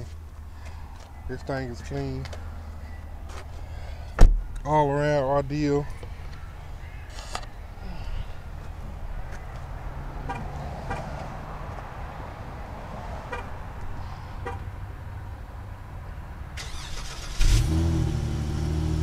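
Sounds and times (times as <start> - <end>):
car engine starting and idling: 16.5 - 19.0.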